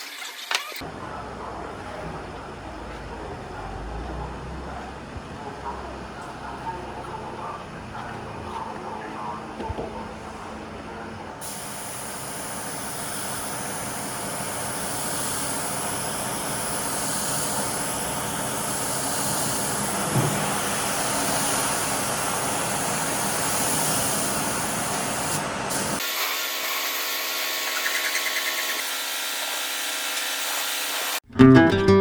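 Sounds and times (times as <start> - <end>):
spray gun hissing: 11.4 - 31.2.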